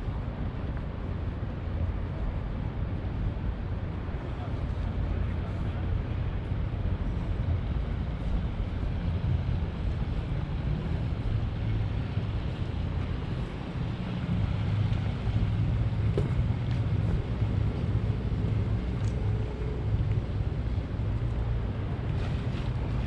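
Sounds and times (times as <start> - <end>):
city background rumble: 0.0 - 23.0.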